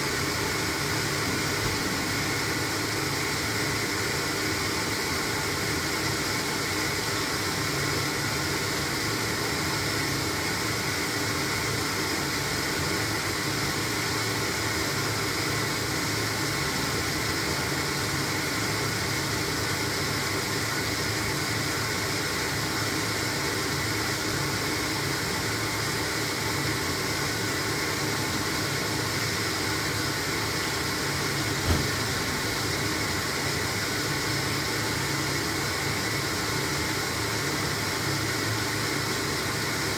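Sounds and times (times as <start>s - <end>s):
washing machine running: 27.7s - 36.3s
washing machine knock: 31.6s - 32.5s.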